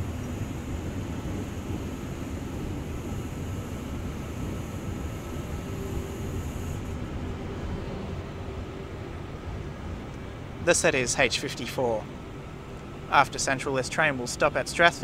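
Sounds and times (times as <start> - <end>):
low hum: 0.0 - 10.7.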